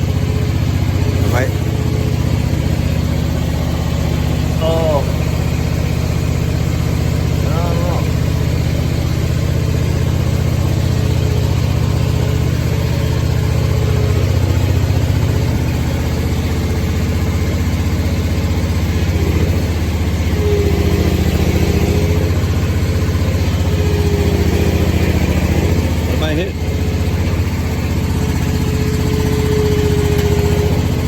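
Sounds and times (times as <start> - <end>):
mower engine running: 0.0 - 31.0.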